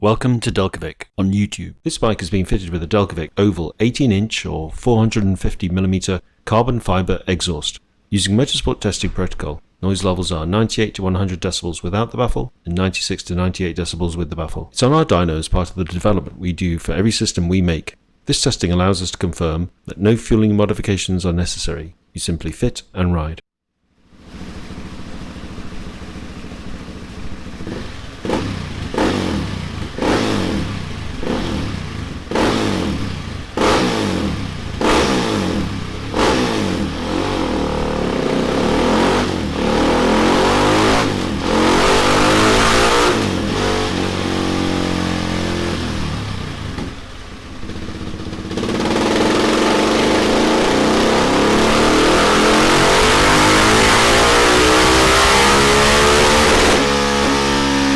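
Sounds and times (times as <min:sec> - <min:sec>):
motorcycle engine revving: 0:24.1 - 0:57.9.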